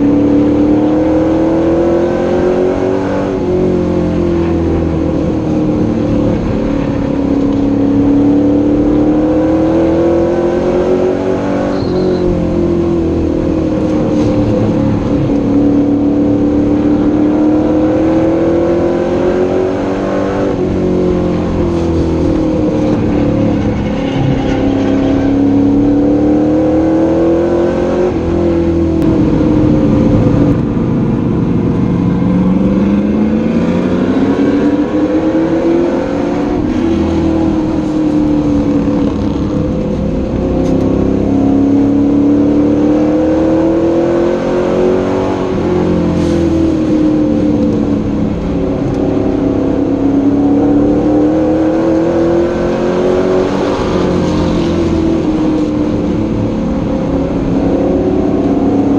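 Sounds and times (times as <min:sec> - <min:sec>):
truck engine revving: 0:00.0 - 0:58.9.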